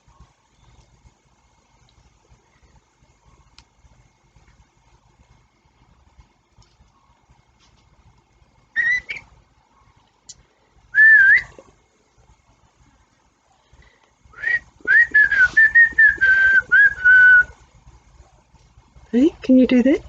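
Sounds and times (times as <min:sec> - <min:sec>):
person whistling: 0:11.0 - 0:11.5, 0:14.4 - 0:17.5.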